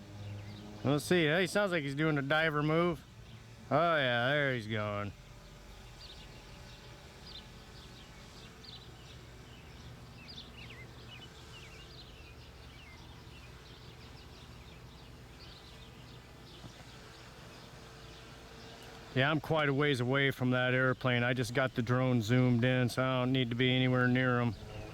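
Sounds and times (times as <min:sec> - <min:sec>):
faint low hum: 0:00.0 - 0:24.9
small birds chirping: 0:00.0 - 0:24.9.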